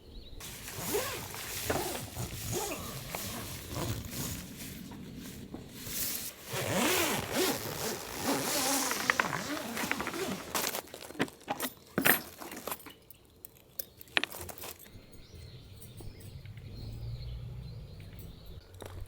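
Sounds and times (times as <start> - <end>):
zipper being pulled: 0.4 - 10.9
fabric rustling: 0.4 - 11.3.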